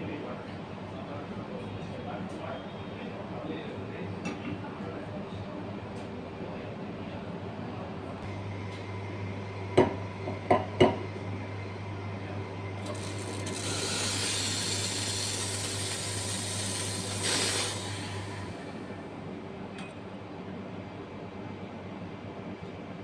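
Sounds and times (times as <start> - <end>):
coffee machine motor hum: 8.2 - 19.7.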